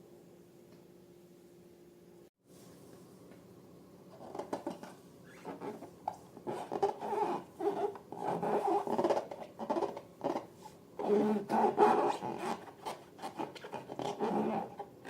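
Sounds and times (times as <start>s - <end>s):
hands rubbing balloons: 4.3s - 15.0s
rubbery squeaks: 5.2s - 15.0s.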